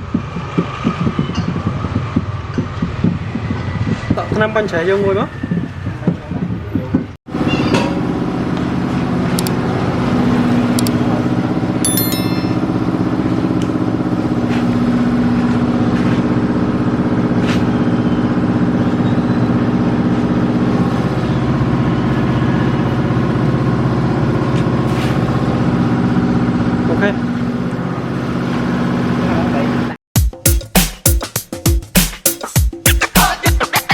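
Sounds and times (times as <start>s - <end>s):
sharp metallic clinks: 11.8s - 12.9s.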